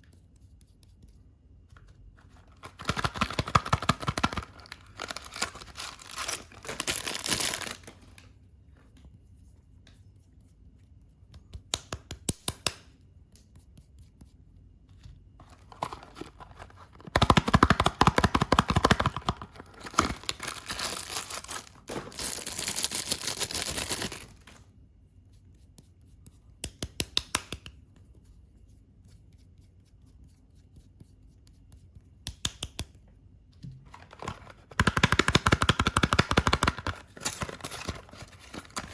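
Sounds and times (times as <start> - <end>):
packaging wrapping tearing and crinkling: 2.5 - 8.2, 15.4 - 24.6, 33.9 - 38.9.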